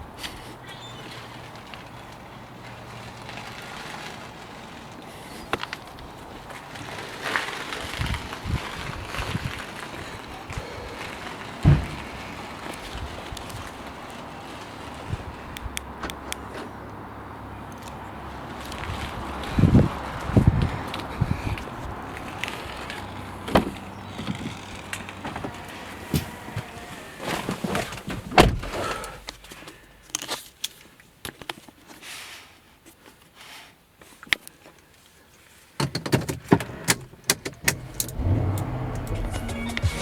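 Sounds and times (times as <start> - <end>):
car doors and controls clicking: 23.0 - 29.5, 35.8 - 40.0.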